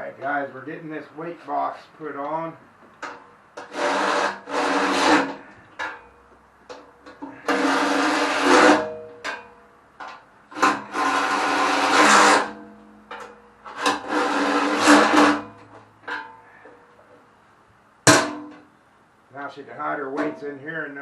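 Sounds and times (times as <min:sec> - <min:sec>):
small clicks and knocks: 0:09.1 - 0:10.8.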